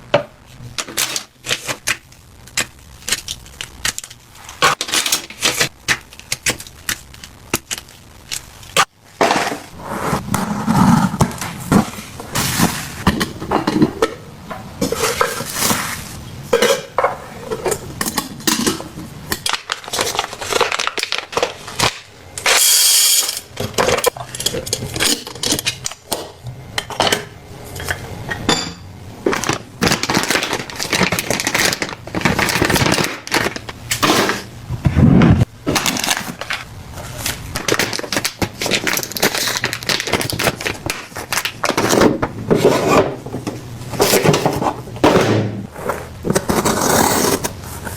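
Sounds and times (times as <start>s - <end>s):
kitchen items clinking and clattering: 9.2s - 34.5s, 35.6s - 47.9s.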